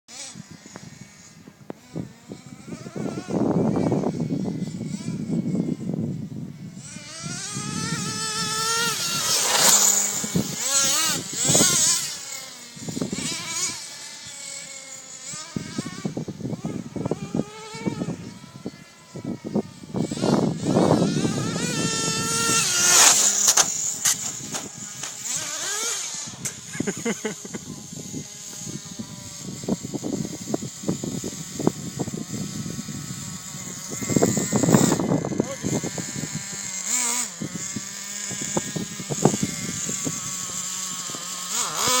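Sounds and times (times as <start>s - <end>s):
toy car motor whining: 0.1s - 42.0s
rough rushing noise: 6.8s - 13.9s, 20.0s - 26.8s.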